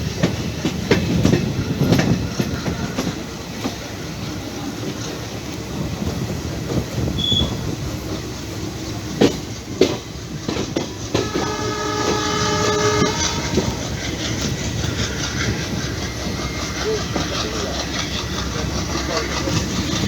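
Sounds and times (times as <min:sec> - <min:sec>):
train rumbling on rails: 0:00.0 - 0:20.0
wheel clacks over rail joints: 0:00.0 - 0:20.0
locomotive horn: 0:11.1 - 0:14.0.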